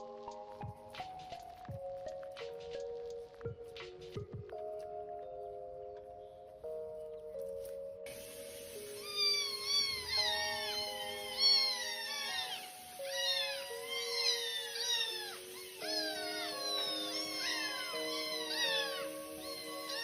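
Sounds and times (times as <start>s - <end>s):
background music with held chords: 0.0s - 20.0s
cat meowing: 8.9s - 20.0s.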